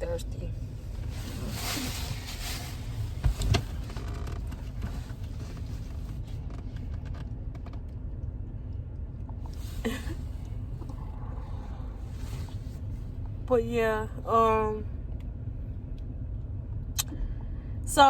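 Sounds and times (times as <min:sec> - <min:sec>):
low rumble in car cabin: 0:00.0 - 0:18.0.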